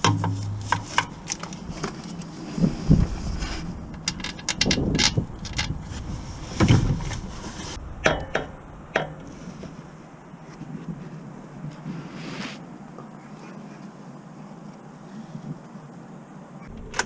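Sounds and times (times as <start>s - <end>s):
tools clinking and knocking: 3.9s - 5.8s.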